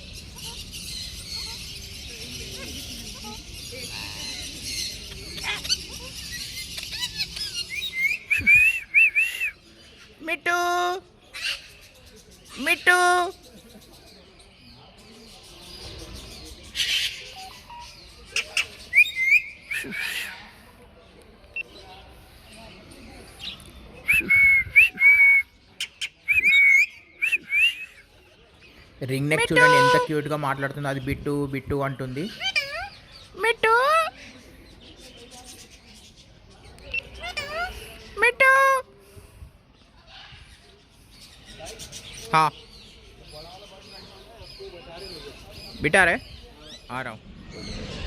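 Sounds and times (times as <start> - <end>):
parrots chirping and squeaking: 0.1 - 8.7, 32.2 - 34.1, 36.8 - 38.6.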